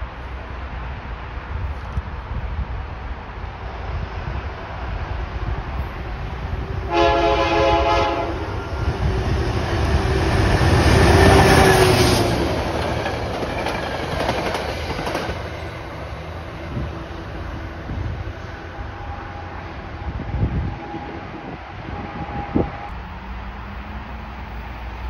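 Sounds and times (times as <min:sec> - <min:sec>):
train wheels on rails: 0:00.0 - 0:25.0
train horn blast: 0:06.8 - 0:08.7.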